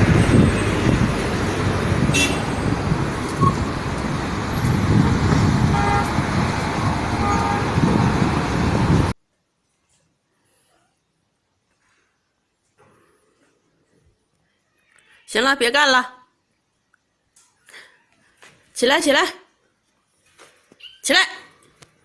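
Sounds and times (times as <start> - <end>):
road traffic noise: 0.0 - 9.2
vehicle horn toots: 2.0 - 2.6, 5.0 - 6.2, 7.2 - 8.0.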